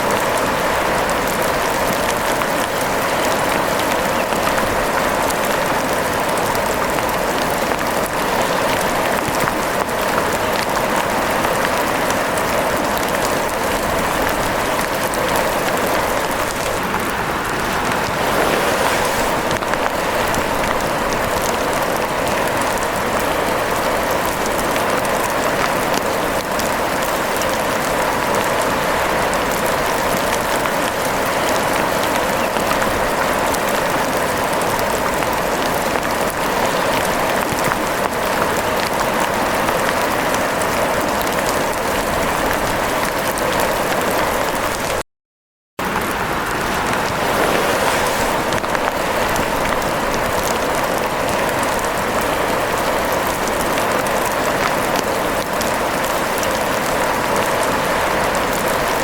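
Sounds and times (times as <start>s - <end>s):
rain falling: 0.0s - 45.0s, 45.8s - 59.0s.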